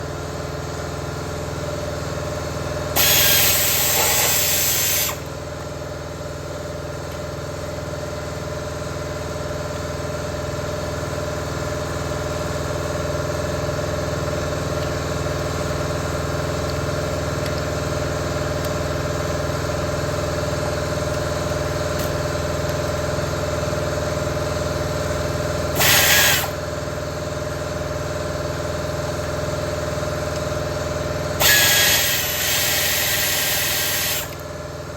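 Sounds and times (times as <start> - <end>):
steady mechanical hum: 0.0 - 34.9
hand-held power tool bursts: 3.0 - 5.3, 25.7 - 26.7, 31.4 - 34.5.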